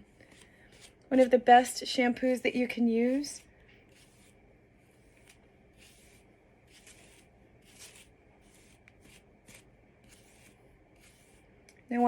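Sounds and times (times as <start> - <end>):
hairbrush swishing through hair: 3.0 - 4.4, 5.0 - 11.5.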